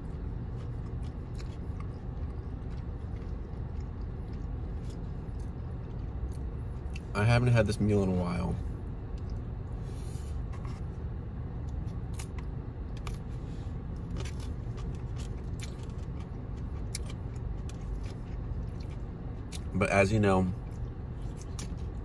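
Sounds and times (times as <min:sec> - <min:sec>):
chewing clicks: 0:00.5 - 0:07.1, 0:14.1 - 0:19.7.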